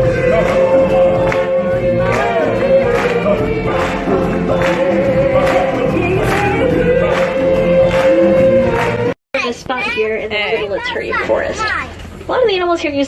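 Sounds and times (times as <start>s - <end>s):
group singing over band: 0.0s - 9.1s.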